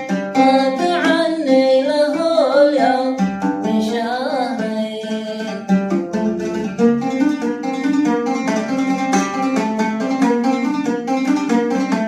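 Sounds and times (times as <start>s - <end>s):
plucked string instrument: 0.0s - 12.0s.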